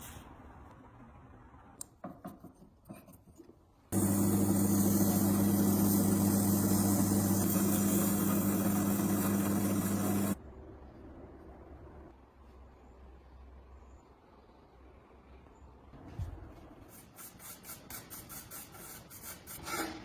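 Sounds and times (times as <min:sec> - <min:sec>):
electric motor humming: 0:04.0 - 0:10.4.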